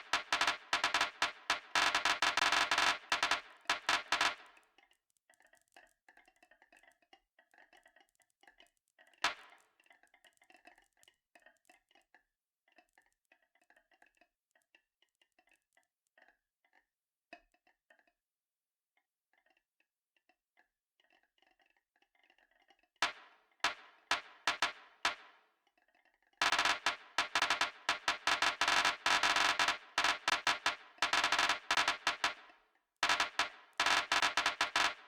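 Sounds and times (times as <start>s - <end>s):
marbles clicking on a track: 0.0s - 4.6s, 23.0s - 25.4s, 26.4s - 35.0s.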